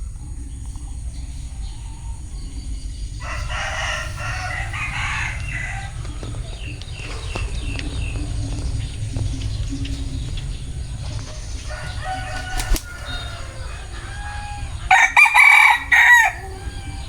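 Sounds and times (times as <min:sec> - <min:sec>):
steady low rumble: 0:00.0 - 0:17.0
rooster crowing: 0:01.6 - 0:08.1, 0:10.8 - 0:17.0
scattered clicks: 0:05.4 - 0:11.7.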